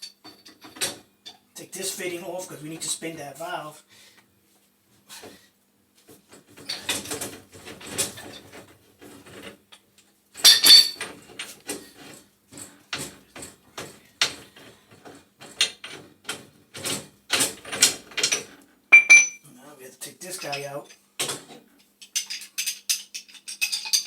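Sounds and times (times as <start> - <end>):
wrenches clinking on metal fittings: 18.9 - 19.4, 22.0 - 24.0.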